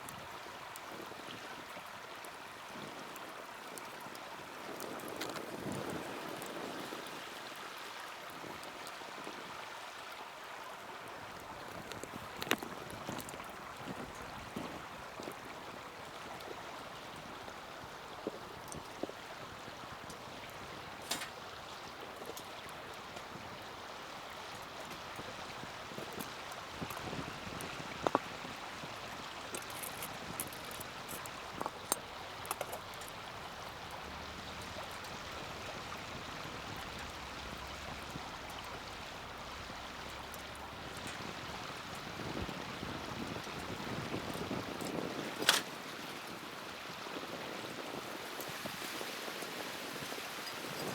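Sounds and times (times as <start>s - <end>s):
fire crackling and popping: 2.1s - 7.2s, 17.2s - 19.3s, 19.9s - 28.4s, 29.0s - 45.8s.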